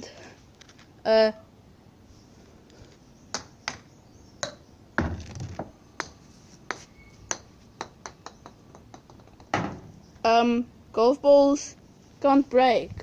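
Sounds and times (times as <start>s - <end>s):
hard objects knocking and tapping: 4.4s - 9.9s.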